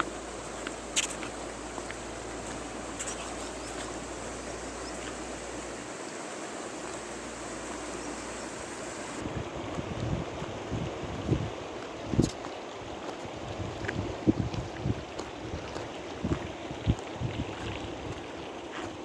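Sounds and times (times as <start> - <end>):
river water rushing: 0.0 - 14.3
wind buffeting microphone: 0.0 - 18.5.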